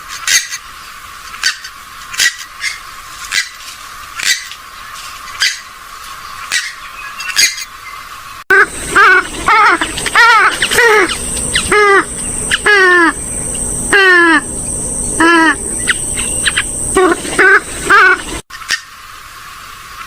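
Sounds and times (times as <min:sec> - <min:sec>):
gallinule harsh calls: 0:08.5 - 0:18.8.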